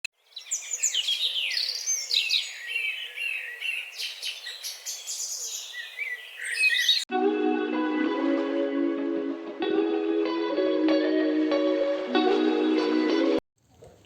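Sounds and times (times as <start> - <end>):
birds chirping and singing: 0.2 - 7.1.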